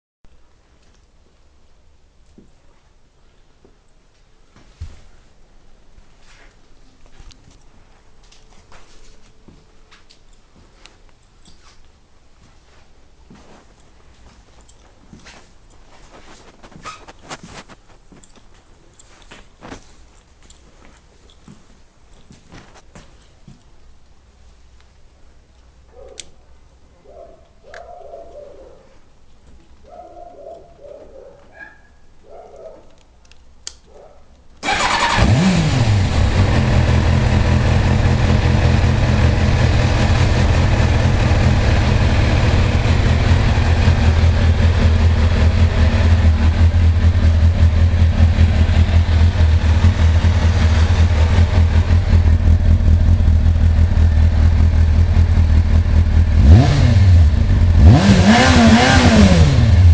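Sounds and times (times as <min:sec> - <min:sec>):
motorcycle engine starting and idling: 0:34.6 - 0:59.9.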